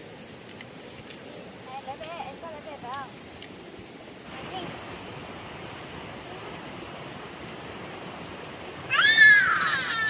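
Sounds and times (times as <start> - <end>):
background noise: 0.0 - 10.0
loud animal call: 8.9 - 10.0.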